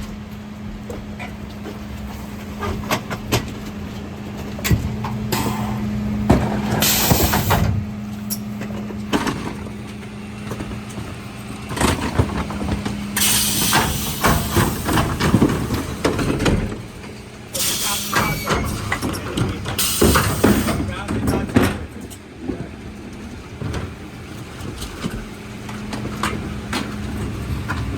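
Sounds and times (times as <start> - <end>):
truck engine humming: 0.0 - 27.9
bins clanking: 1.1 - 27.9
air hiss bursts: 13.2 - 15.0.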